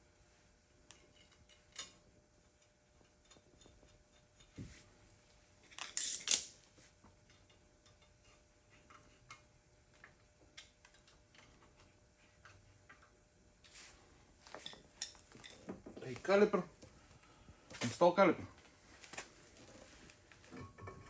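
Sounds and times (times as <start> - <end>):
metallic tool clicks and clinks: 5.8 - 6.6.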